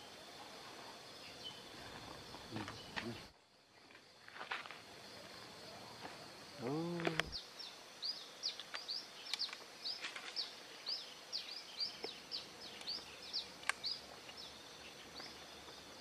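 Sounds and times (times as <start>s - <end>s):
small bird chirping: 6.6s - 16.0s.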